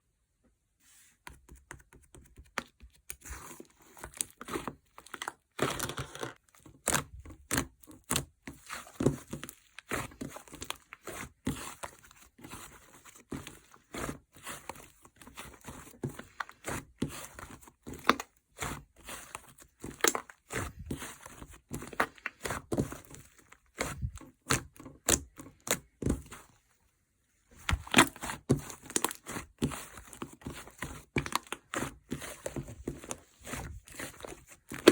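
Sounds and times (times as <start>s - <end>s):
slime squished by hand: 27.6s - 32.5s.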